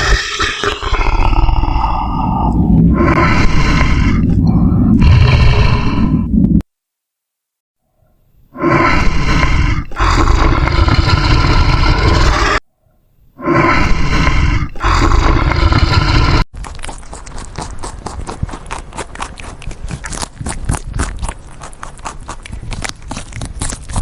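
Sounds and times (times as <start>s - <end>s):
loud animal roar: 0.0s - 6.3s, 8.5s - 12.6s, 13.4s - 16.4s.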